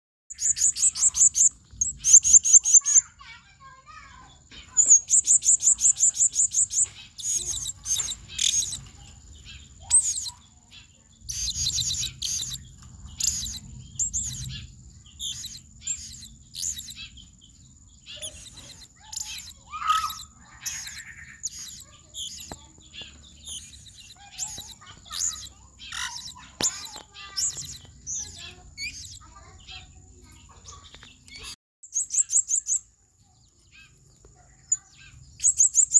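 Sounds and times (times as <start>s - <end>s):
parrot chirping: 0.3s - 32.9s, 33.7s - 35.9s.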